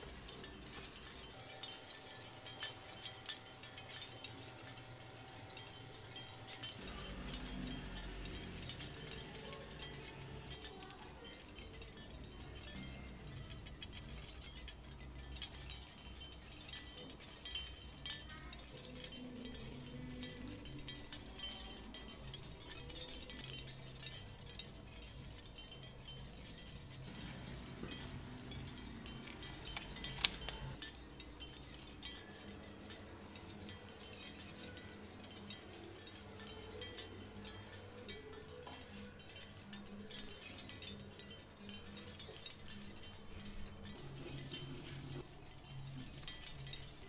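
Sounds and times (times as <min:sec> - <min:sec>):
soft music with chime tones: 0:00.0 - 0:47.0.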